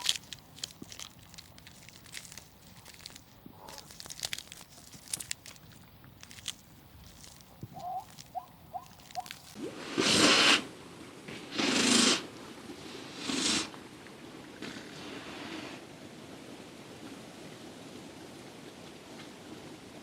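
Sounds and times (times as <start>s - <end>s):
pig chewing and rooting: 0.0s - 9.6s.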